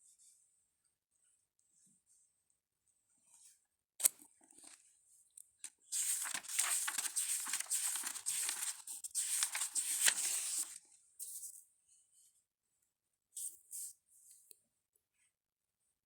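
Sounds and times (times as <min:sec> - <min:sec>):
dry rustling and crinkling: 0:06.0 - 0:10.8.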